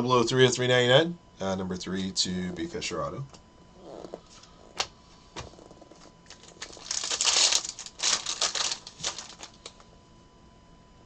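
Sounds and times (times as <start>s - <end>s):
cards rustling as flipped: 6.3s - 9.8s.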